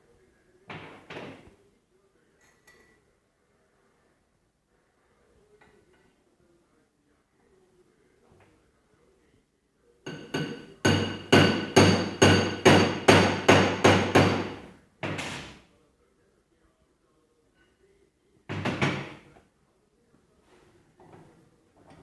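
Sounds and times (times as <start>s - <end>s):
hammer striking metal: 10.1s - 14.7s.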